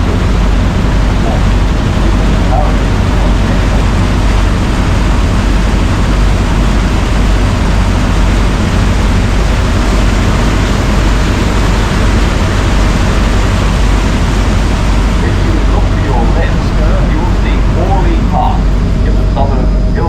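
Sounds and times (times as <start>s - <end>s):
boat engine drone: 0.0s - 20.0s
boat moving through water: 0.0s - 20.0s
wind over microphone: 0.0s - 20.0s.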